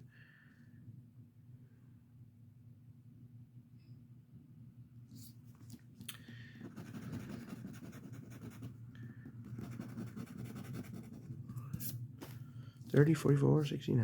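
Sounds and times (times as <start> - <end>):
scratch ticket being scratched: 6.7 - 8.7, 9.6 - 11.9.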